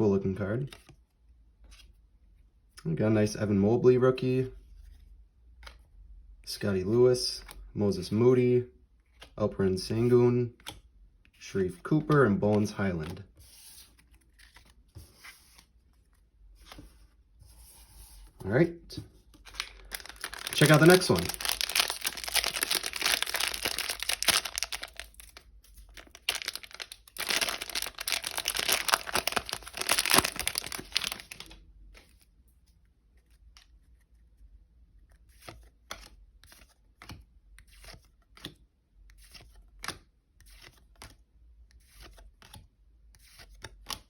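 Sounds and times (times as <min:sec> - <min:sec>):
wrapper crinkling and tearing: 0:19.5 - 0:31.5.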